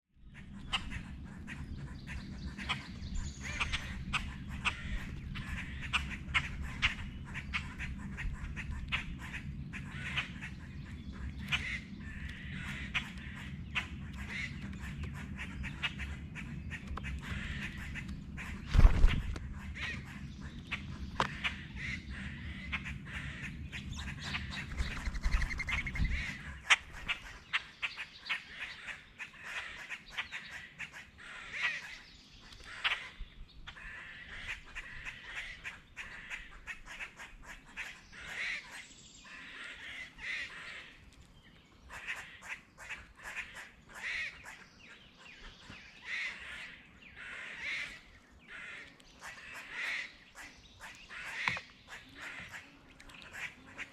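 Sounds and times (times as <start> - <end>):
birds calling harshly: 0.2 - 53.9.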